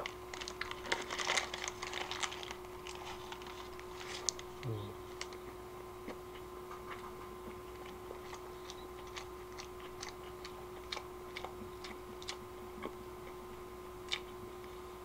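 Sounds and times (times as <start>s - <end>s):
low electrical hum: 0.0s - 15.0s
person chewing with wet clicks: 4.2s - 14.8s.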